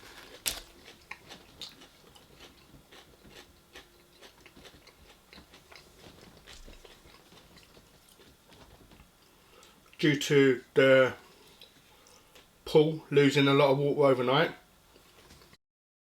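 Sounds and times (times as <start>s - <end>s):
chewing and biting food: 0.0s - 10.0s.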